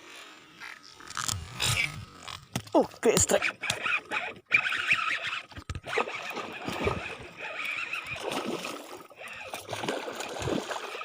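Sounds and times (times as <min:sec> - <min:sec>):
fish thrashing in water: 0:04.1 - 0:11.0.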